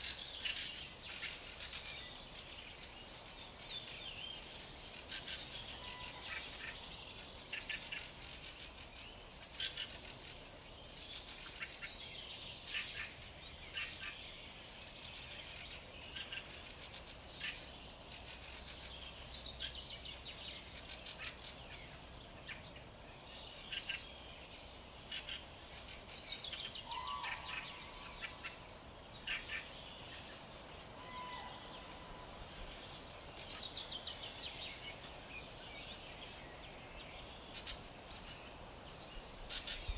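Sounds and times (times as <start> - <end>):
birds chirping and trilling: 10.9 - 39.9.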